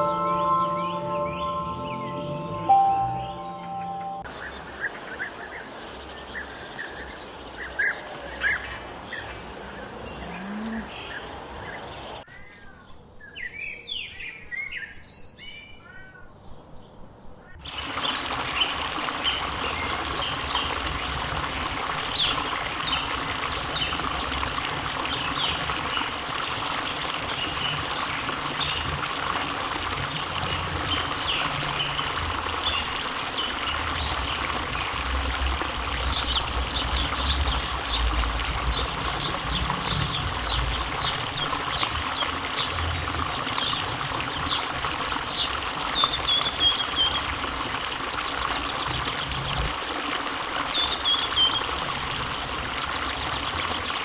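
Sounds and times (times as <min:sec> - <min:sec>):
birds chirping: 0:00.0 - 0:04.2
running water rushing: 0:17.6 - 0:54.0.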